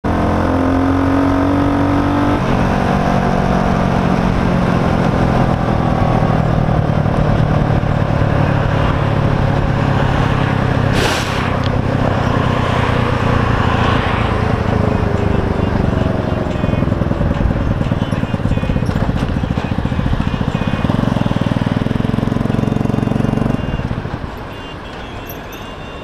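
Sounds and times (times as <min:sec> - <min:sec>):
motorcycle engine running: 0:00.1 - 0:25.9
brief hiss: 0:10.9 - 0:11.7.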